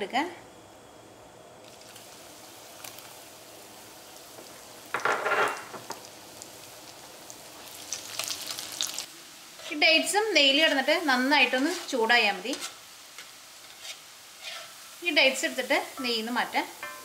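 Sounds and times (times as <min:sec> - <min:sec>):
food sizzling in hot fat: 0:01.5 - 0:17.0
crackling spatters: 0:05.8 - 0:09.7.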